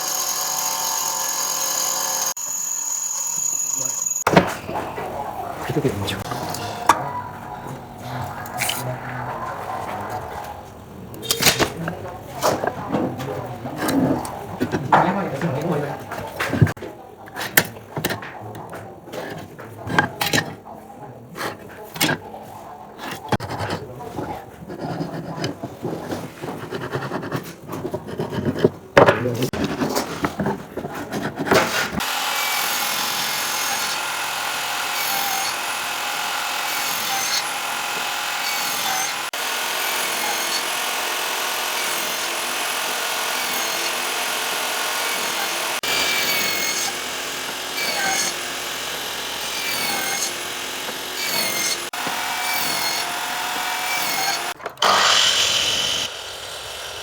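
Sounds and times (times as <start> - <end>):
power tool working wood: 0.0 - 4.4, 31.7 - 57.0
scraping and rubbing on wood: 21.4 - 32.0.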